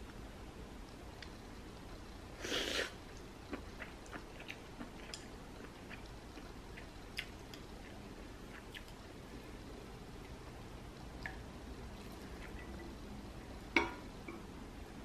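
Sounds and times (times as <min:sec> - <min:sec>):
person chewing food: 0:02.4 - 0:09.1.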